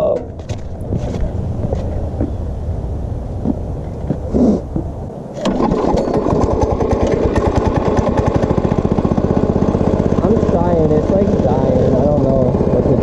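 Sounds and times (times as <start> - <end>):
go-kart engine running: 5.4 - 13.0.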